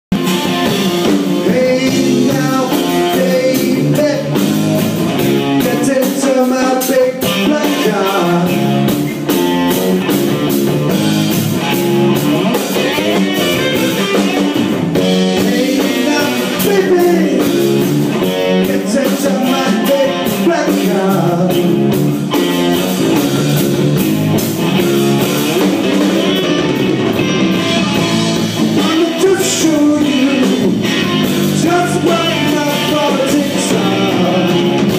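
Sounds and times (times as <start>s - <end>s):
guitar: 0.1s - 34.9s
rock band playing: 0.1s - 34.9s
person singing: 1.0s - 4.6s, 5.5s - 8.7s, 15.1s - 21.9s, 28.8s - 34.9s.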